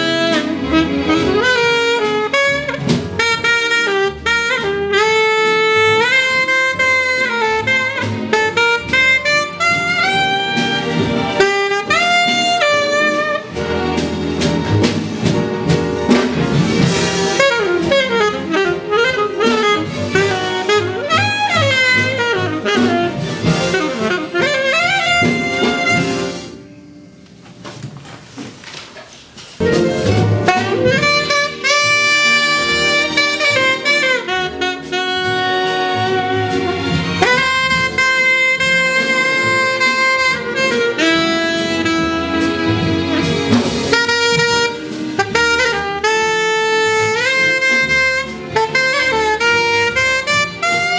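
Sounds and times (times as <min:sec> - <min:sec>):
jazz saxophone playing: 0:00.0 - 0:27.3, 0:29.6 - 0:50.9
jazz band: 0:00.0 - 0:50.9.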